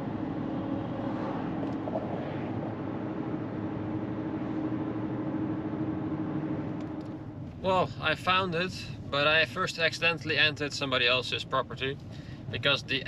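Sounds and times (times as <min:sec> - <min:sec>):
constant low hum: 0:00.0 - 0:13.0
road and engine noise in car: 0:00.0 - 0:13.0.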